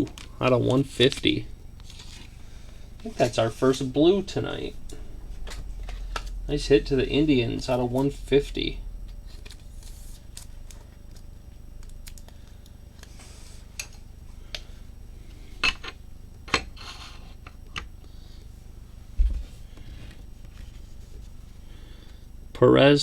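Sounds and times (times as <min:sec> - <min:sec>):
steady low hum: 0:00.0 - 0:23.0
cards sliding and rustling: 0:01.8 - 0:02.4.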